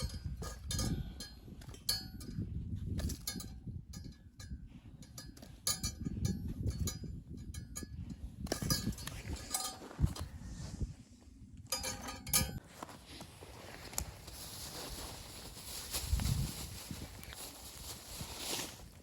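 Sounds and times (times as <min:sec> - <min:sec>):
light metallic clinks and knocks: 0:00.0 - 0:10.3, 0:11.7 - 0:12.6.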